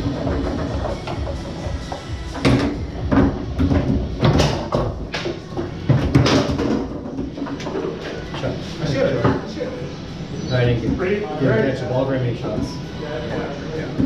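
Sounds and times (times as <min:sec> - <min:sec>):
foosball ball clacks: 0:00.0 - 0:08.4
foosball rods sliding and rattling: 0:00.0 - 0:09.6
ball rolling: 0:00.0 - 0:09.7.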